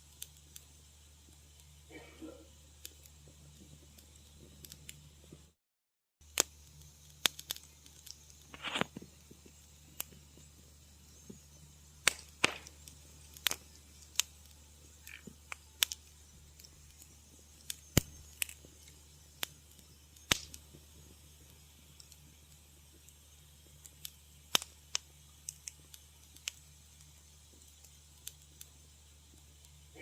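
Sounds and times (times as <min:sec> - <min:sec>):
steady low hum: 0:00.0 - 0:05.6, 0:06.3 - 0:30.0
wood fire crackling: 0:00.0 - 0:05.6, 0:06.2 - 0:30.0
hissing sputter: 0:06.3 - 0:30.0.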